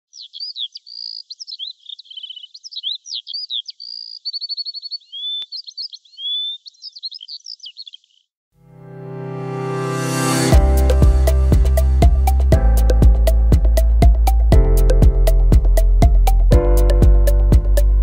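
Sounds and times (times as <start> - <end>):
songbird singing: 0.0 - 8.3.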